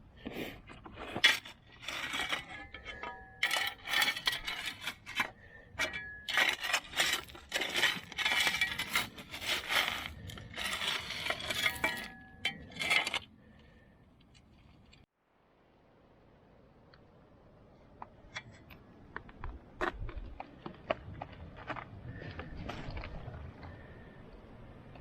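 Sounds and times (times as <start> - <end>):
gravel rattling against tools: 0.5 - 15.1.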